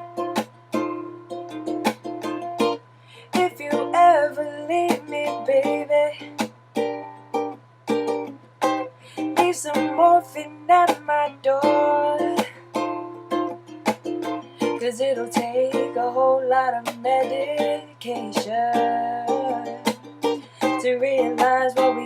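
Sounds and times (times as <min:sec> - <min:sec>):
person singing: 0:00.0 - 0:01.0, 0:03.2 - 0:06.5, 0:09.0 - 0:13.2, 0:14.3 - 0:22.0
ukulele strummed: 0:00.0 - 0:22.0.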